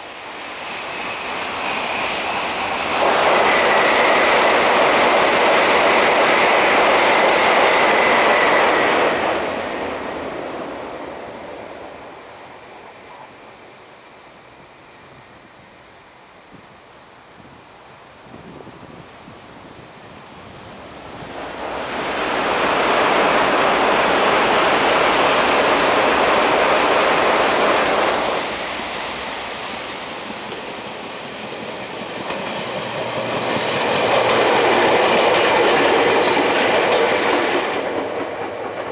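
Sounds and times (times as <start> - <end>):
electric train passing: 0.0 - 38.9
wheels clacking over rail joints: 28.4 - 38.9.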